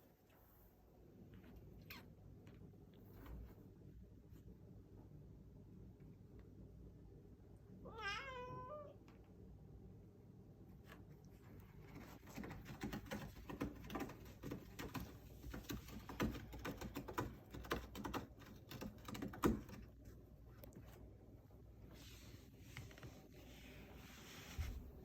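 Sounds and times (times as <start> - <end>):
cat scratching a scratcher: 10.9 - 20.2.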